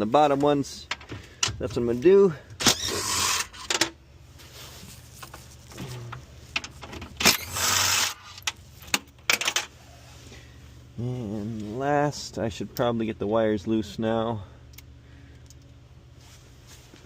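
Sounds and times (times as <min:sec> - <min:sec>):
short rustling: 0:04.2 - 0:06.5, 0:16.1 - 0:17.0.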